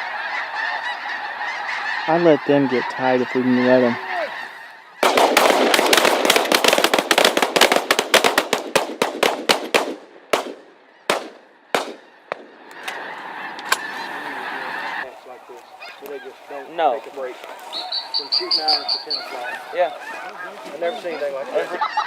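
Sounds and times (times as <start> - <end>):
shotgun fire: 5.0 - 12.6.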